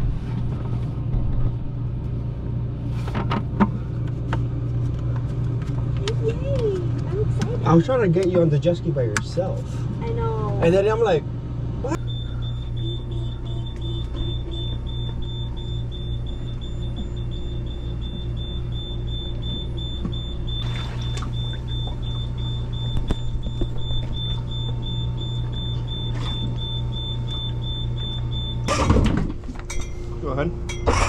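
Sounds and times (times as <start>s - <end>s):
low machinery hum: 0.0s - 31.0s
high pulsing beep tone: 11.9s - 29.0s.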